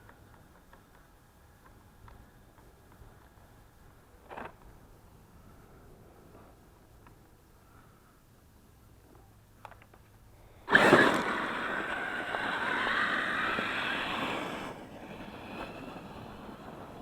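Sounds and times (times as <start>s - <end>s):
rc truck motor whine: 10.6s - 17.0s
tyre noise: 10.7s - 17.0s.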